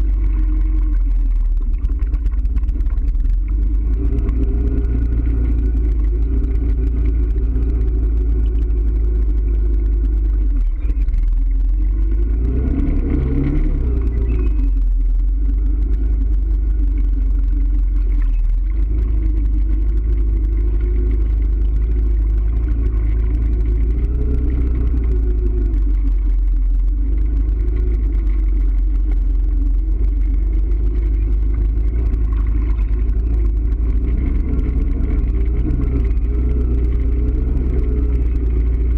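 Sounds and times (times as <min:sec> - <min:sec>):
vehicle engine rumbling: 0:00.0 - 0:38.9.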